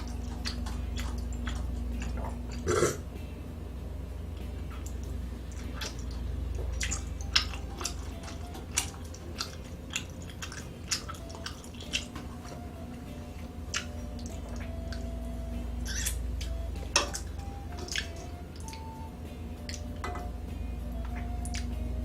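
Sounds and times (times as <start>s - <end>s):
person chewing food: 0.0s - 3.0s, 4.8s - 15.2s, 15.9s - 19.0s.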